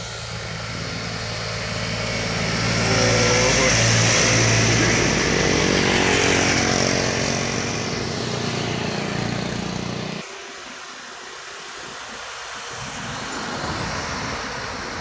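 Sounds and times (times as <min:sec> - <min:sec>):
vehicle engine humming: 0:00.0 - 0:10.2.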